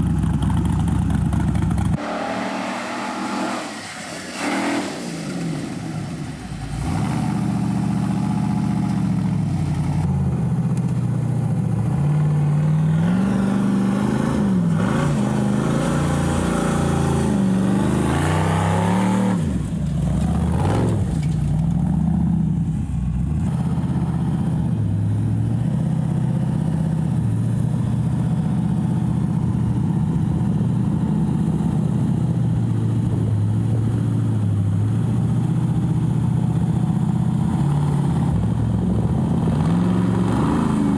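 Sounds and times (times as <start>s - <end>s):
buggy engine revving: 0.0s - 40.9s.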